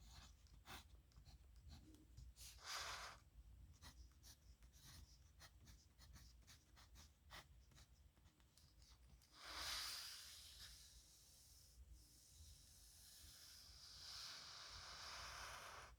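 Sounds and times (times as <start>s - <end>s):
pen scratching on paper: 0.0s - 1.9s, 3.7s - 8.3s.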